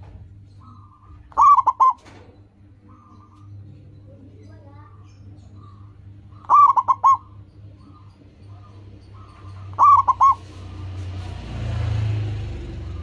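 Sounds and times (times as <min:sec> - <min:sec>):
dove cooing: 0:00.5 - 0:03.8, 0:04.8 - 0:11.6.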